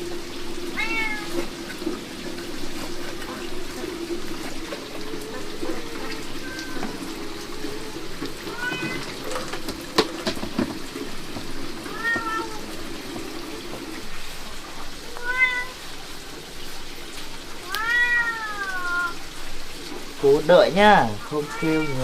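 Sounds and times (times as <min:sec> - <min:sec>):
steady rain hissing: 0:00.0 - 0:22.0
cat meowing: 0:00.8 - 0:01.4, 0:05.2 - 0:09.3, 0:11.9 - 0:12.7, 0:15.0 - 0:15.8, 0:17.6 - 0:19.2, 0:21.1 - 0:22.0.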